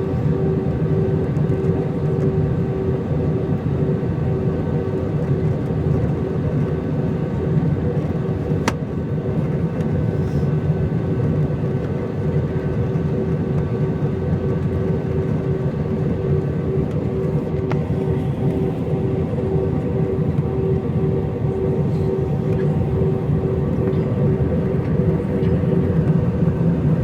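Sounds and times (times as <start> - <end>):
aircraft cabin engine drone: 0.0 - 27.0
steady hums: 14.7 - 27.0.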